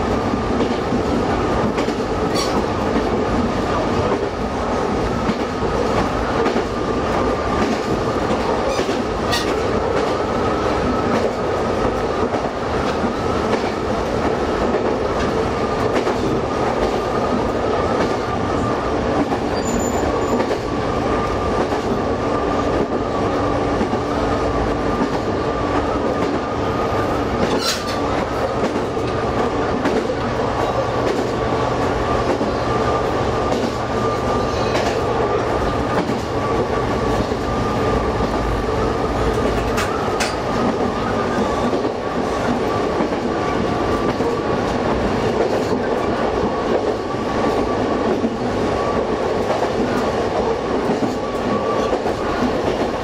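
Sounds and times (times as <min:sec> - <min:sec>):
railcar engine and wheel noise: 0:00.0 - 0:53.0.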